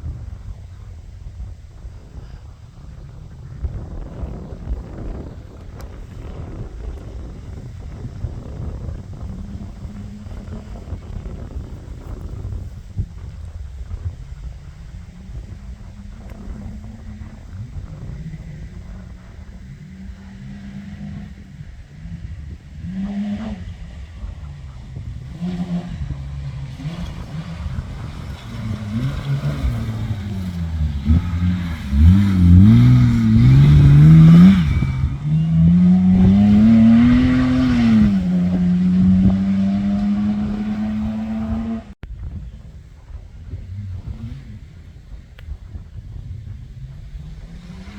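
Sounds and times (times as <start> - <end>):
off-road racing car engine revving: 0.0 - 47.9.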